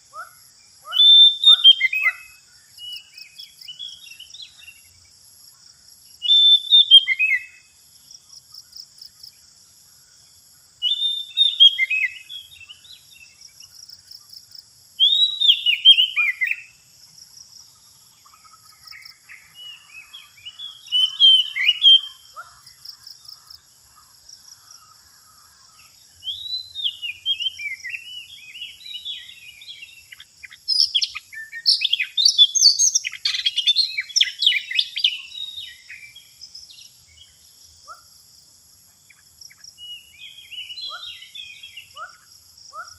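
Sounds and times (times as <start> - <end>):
bird singing whistled phrases: 0.8 - 4.6, 6.2 - 7.6, 10.8 - 13.0, 15.0 - 16.7, 20.5 - 22.2, 26.2 - 36.2.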